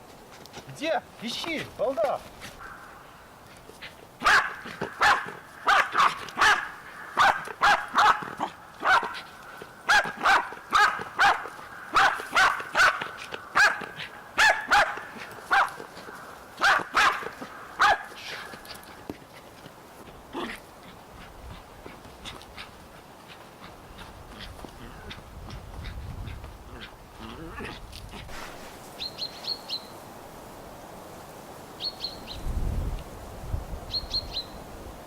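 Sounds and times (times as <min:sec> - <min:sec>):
dog barking: 0:04.2 - 0:09.3, 0:09.9 - 0:15.9, 0:16.6 - 0:18.6.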